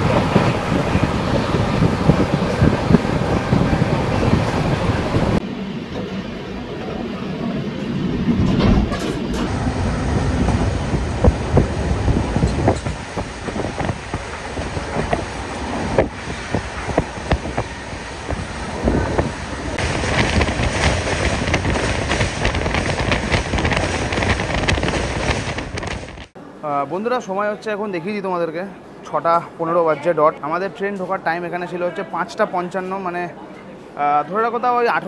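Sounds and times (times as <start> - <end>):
train wheels rumbling and clacking: 0.0 - 7.0, 7.7 - 26.4.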